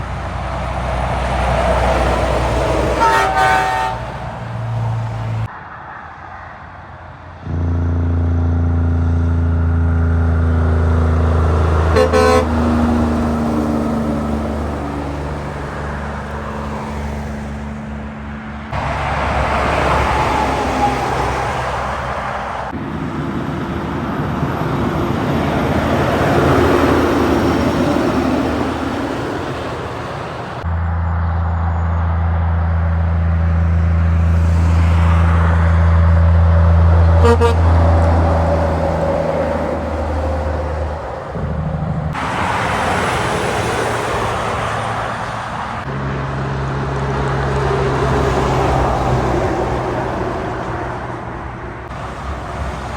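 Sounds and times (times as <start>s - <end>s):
truck engine drone: 0.0s - 52.9s
truck passing with tyre noise: 0.0s - 52.9s.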